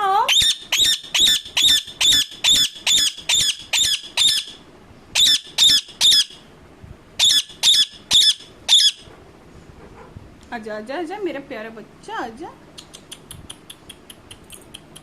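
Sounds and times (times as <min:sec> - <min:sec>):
parakeet screeching: 0:00.3 - 0:04.6, 0:05.2 - 0:06.4, 0:07.2 - 0:09.1.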